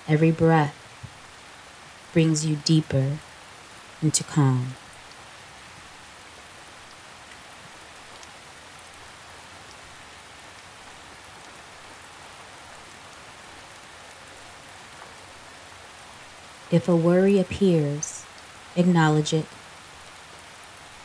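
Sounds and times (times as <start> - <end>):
rain pattering on leaves: 0.0 - 21.0
faint water drips: 13.7 - 20.2.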